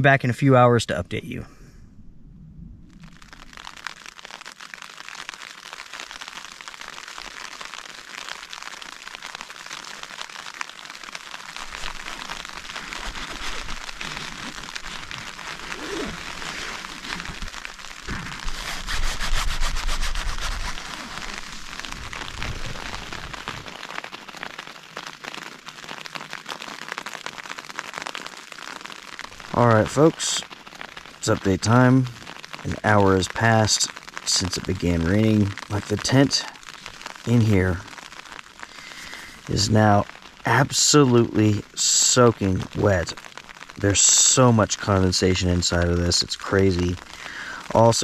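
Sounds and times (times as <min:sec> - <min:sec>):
deep rumble: 0:01.4 - 0:03.3, 0:20.1 - 0:23.7
rain on a tent: 0:02.9 - 0:48.0.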